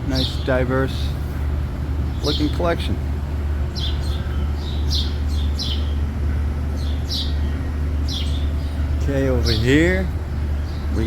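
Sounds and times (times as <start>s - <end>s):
ventilation hum: 0.0s - 11.0s
small bird chirping: 3.8s - 6.0s, 6.8s - 9.7s.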